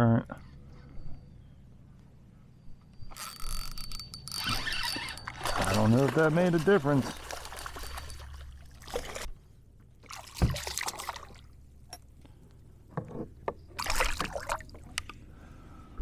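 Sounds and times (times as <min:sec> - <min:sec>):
water splashing around a kayak: 0:05.0 - 0:09.4, 0:10.0 - 0:11.6, 0:13.8 - 0:15.0.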